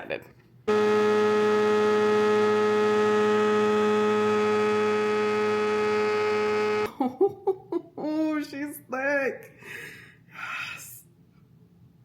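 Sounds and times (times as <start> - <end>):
blender motor running: 0.7 - 6.9.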